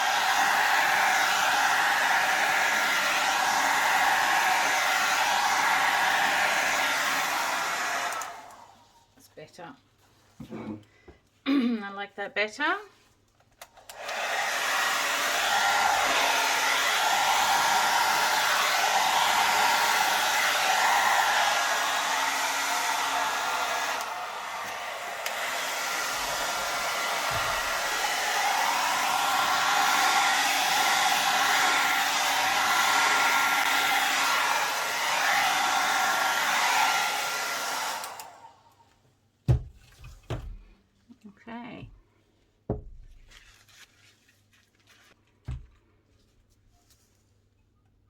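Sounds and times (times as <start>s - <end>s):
hair dryer running: 0.0s - 8.8s, 13.6s - 38.8s.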